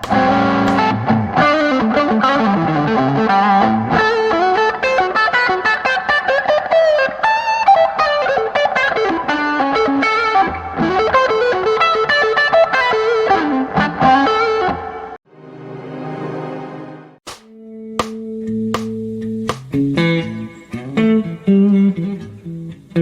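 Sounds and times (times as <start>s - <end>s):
sustained guitar tone: 0.0s - 5.3s, 17.5s - 22.8s
overdriven electric guitar lead: 0.0s - 14.9s.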